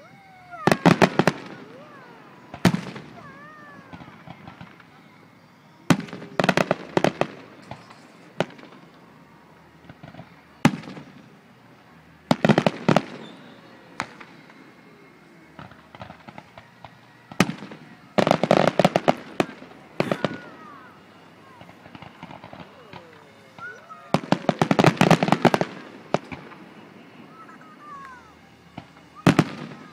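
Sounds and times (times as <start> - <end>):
firework crackling: 0.0 - 29.9
firework shells bursting: 12.2 - 29.9.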